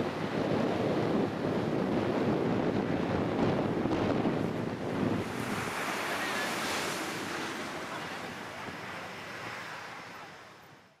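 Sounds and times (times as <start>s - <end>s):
wind on microphone: 0.0s - 9.6s
surf breaking: 2.8s - 9.8s.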